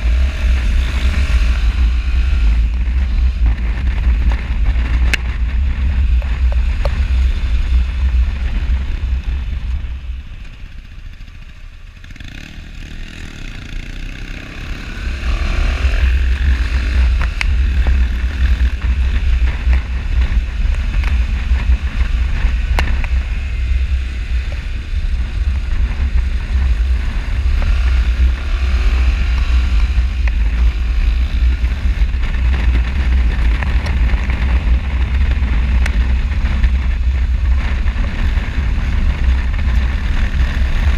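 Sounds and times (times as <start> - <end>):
motorcycle engine: 0.0 - 40.9
wind rumbling over microphone: 0.0 - 40.9.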